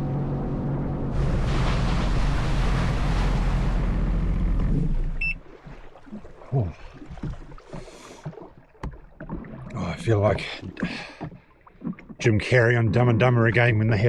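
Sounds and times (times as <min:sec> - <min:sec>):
jet ski engine hum: 0:00.0 - 0:12.4
rushing water: 0:00.0 - 0:14.0
water slapping the hull: 0:00.0 - 0:14.0
wind: 0:00.0 - 0:14.0.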